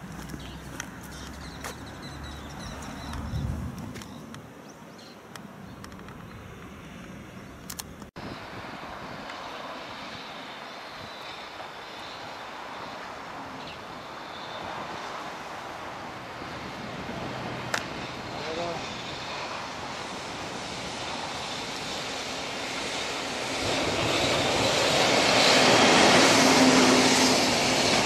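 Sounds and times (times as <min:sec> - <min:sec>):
footsteps clicking: 0:00.0 - 0:01.9
distant freight train: 0:05.9 - 0:28.0.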